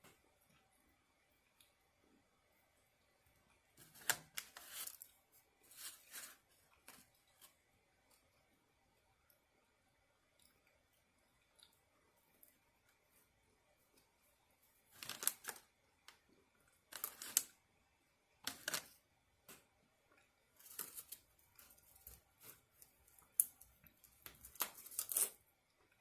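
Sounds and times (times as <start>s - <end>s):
rustling: 3.8s - 7.6s
crisp crunching: 20.6s - 25.4s.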